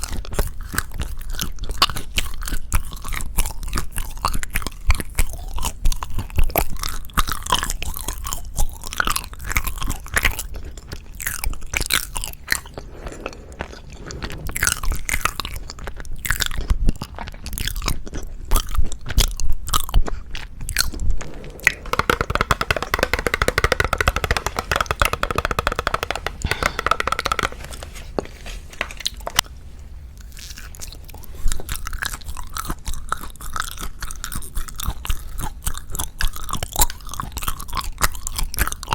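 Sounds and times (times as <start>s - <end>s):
chewing and crunching sweets: 0.0s - 38.9s
steady pitched sound: 21.0s - 28.0s.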